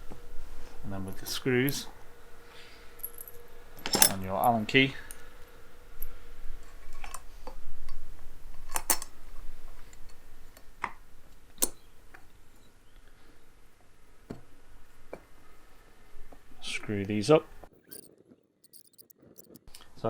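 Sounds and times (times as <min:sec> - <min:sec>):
metal screws clinking: 0:03.9 - 0:04.2, 0:17.8 - 0:19.6.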